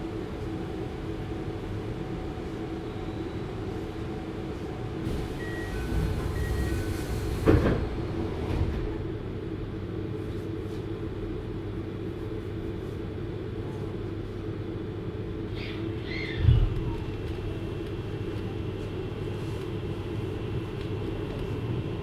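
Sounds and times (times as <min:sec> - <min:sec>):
train wheels rumbling on rail: 0:03.9 - 0:11.0.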